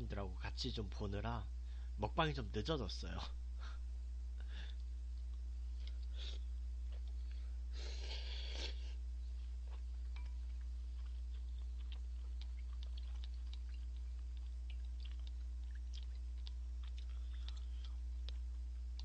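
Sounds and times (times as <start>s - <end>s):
low electrical hum: 0.0s - 19.0s
person chewing noodles: 4.7s - 19.0s.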